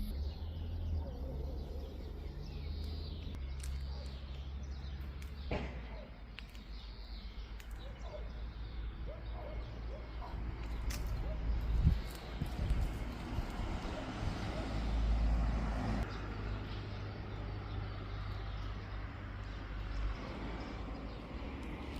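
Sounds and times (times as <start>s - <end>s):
birds chirping and calling: 0.0s - 21.9s
steady low rumble: 10.3s - 14.5s.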